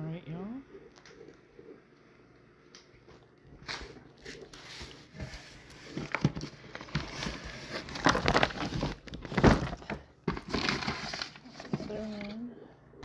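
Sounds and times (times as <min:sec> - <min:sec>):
packaging rustling and crinkling: 0:03.6 - 0:12.4.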